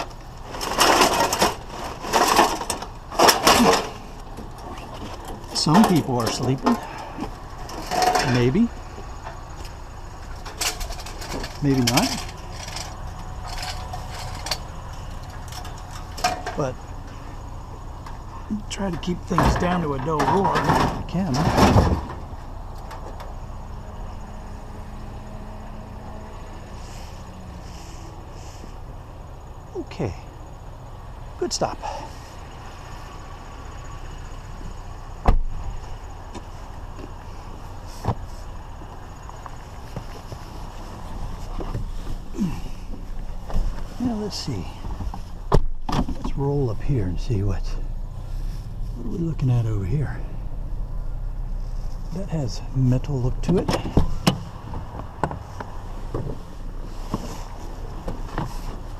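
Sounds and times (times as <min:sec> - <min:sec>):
scrap scraping and crunching: 0:00.0 - 0:17.4, 0:35.7 - 0:47.4, 0:53.2 - 0:58.9
vehicle engine humming: 0:00.0 - 0:58.9.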